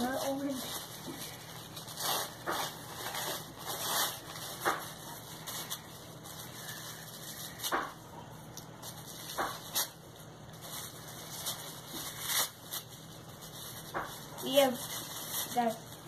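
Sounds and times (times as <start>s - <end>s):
wrapping paper rustling: 0.0s - 16.0s.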